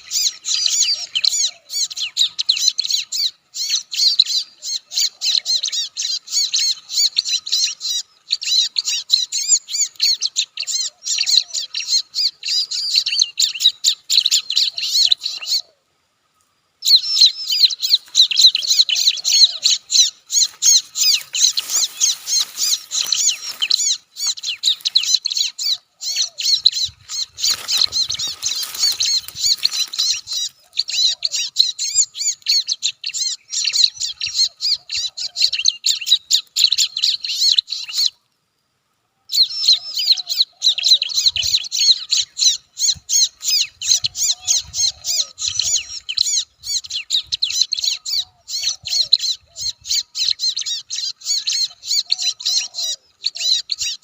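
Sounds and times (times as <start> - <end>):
bird chirping rapidly: 16.8 - 38.1, 39.3 - 54.0.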